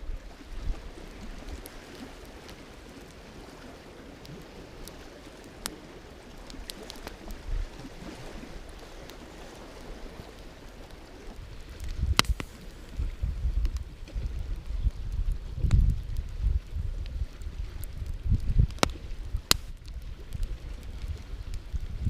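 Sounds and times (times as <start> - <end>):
campfire crackling: 0.0 - 22.0
wind on microphone: 0.0 - 22.0
fire hiss: 4.7 - 13.8, 17.2 - 20.4.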